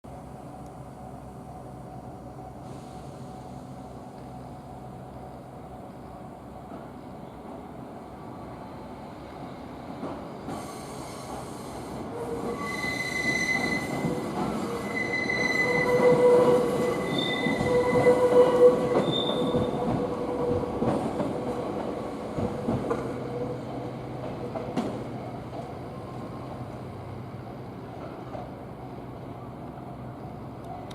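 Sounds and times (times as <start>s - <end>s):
electric train running past: 0.2s - 30.9s
train wheels squealing: 9.4s - 20.6s.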